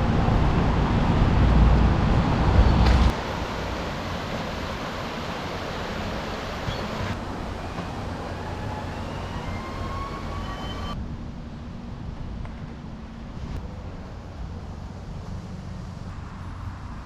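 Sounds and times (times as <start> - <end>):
rushing outdoor noise: 0.0 - 17.0
faint high whistles: 5.9 - 11.0.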